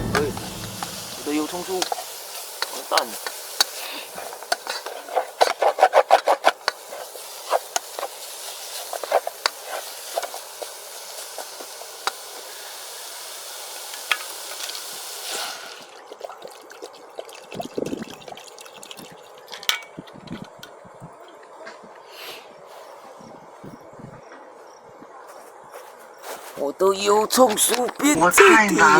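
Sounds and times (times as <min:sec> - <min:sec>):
person talking: 0:00.0 - 0:01.8, 0:26.7 - 0:28.9
shallots sizzling in oil: 0:00.0 - 0:15.9.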